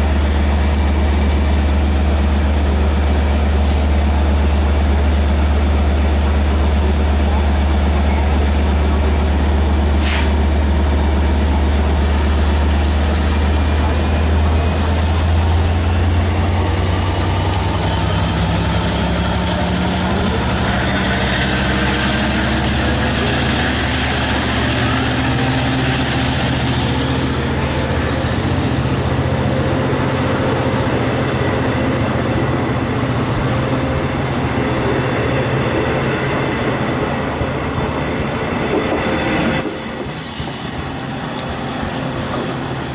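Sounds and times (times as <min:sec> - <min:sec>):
diesel locomotive engine drone: 0:00.0 - 0:42.9.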